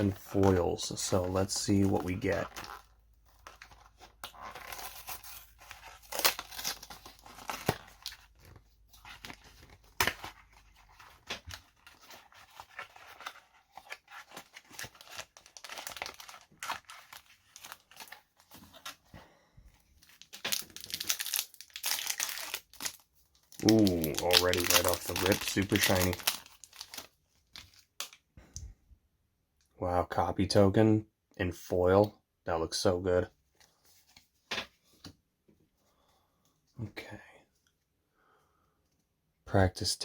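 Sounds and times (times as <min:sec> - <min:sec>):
wrapper being torn and crinkled: 0:01.5 - 0:19.0, 0:20.0 - 0:28.2.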